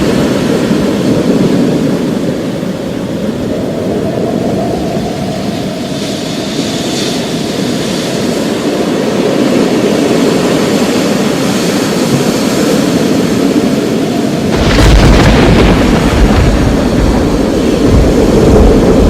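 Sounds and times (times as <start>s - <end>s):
rolling rumble of thunder: 8.4s - 19.0s
sharp loud thunderclap: 14.5s - 19.0s.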